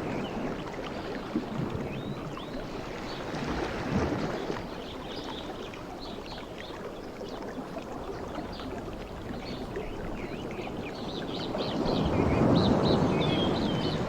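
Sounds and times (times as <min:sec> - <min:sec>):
sea waves washing in: 0:10.7 - 0:14.0.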